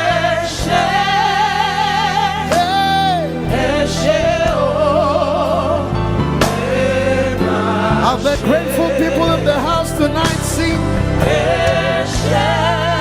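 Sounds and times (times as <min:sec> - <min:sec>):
instrumental backing: 0:00.0 - 0:13.0.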